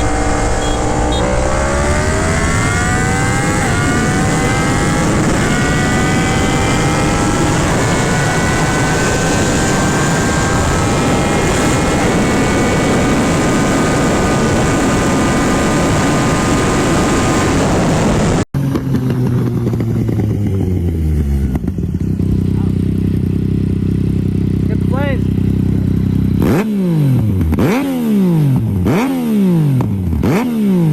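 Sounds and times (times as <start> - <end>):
wind rush on microphone: 0.0 - 18.4
motorcycle engine revving: 0.0 - 30.9.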